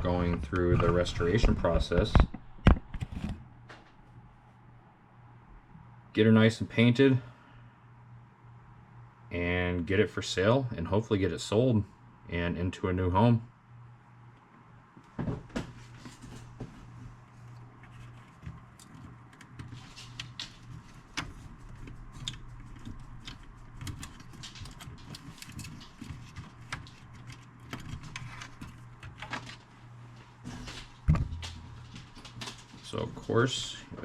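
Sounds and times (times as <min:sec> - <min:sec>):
steady low hum: 0:00.0 - 0:34.0
clicks and rattles of handling cables: 0:15.0 - 0:34.0.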